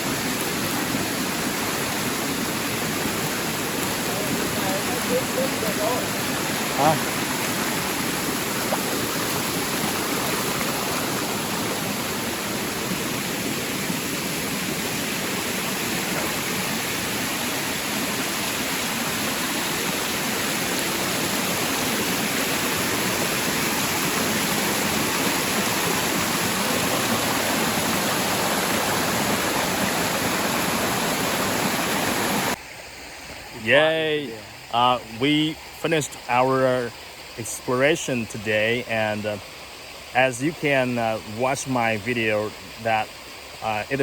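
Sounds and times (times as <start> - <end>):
waterfall pouring: 0.0 - 32.6.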